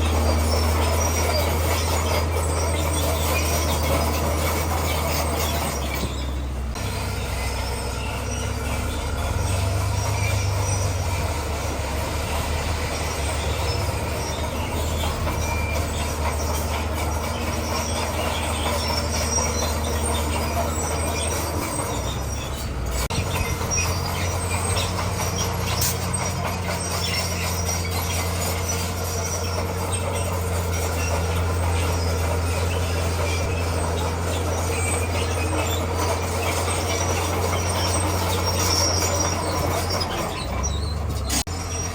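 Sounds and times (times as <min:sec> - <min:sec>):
bulldozer diesel engine: 0:00.0 - 0:41.9
steel tracks squealing and clanking: 0:00.0 - 0:41.9.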